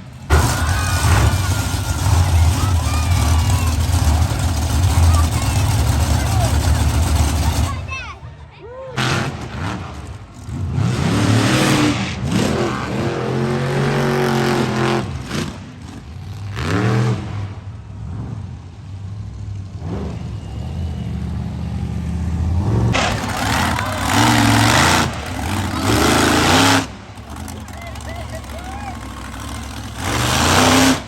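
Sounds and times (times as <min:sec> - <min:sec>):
truck engine revving: 0:00.0 - 0:08.0, 0:09.0 - 0:31.0.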